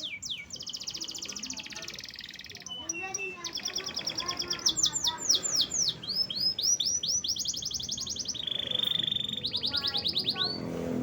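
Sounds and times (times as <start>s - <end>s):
canary singing: 0.0s - 10.8s.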